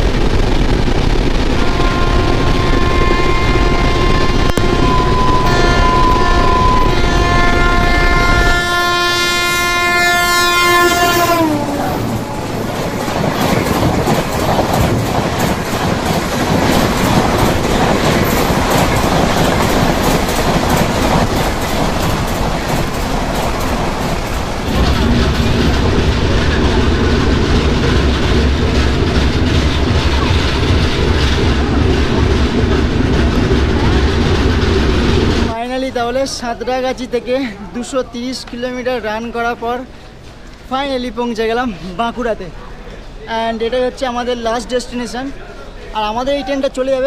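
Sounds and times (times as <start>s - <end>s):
deep train rumble with hum: 0.0s - 41.9s
train wheels clattering over rail joints: 10.2s - 35.6s.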